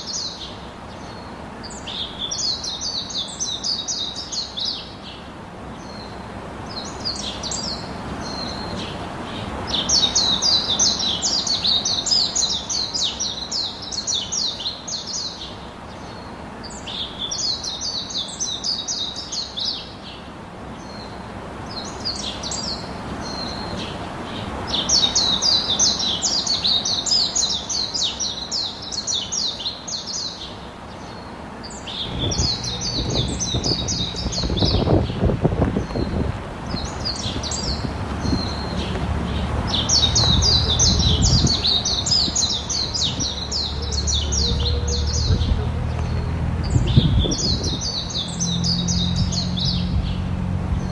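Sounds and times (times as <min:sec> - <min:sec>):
birds singing rapid chirps: 0:00.0 - 0:50.9
low rumbling noise: 0:31.9 - 0:50.9.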